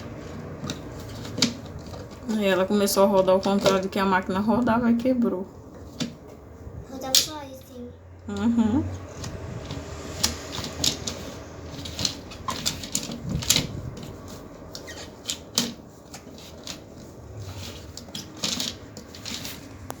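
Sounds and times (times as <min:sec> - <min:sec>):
plastic toys clicking and tapping: 0:00.0 - 0:02.5, 0:03.1 - 0:04.0, 0:07.0 - 0:07.4, 0:09.1 - 0:20.0.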